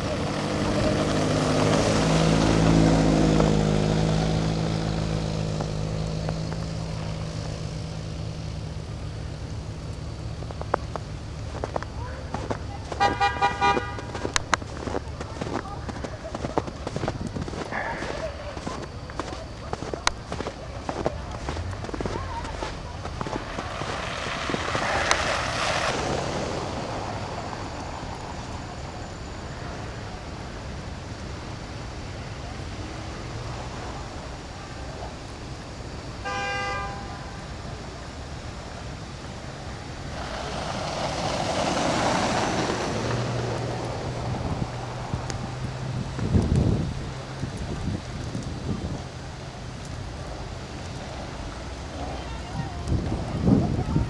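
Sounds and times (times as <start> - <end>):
passing engine drone: 0.0 - 30.4, 39.6 - 47.5.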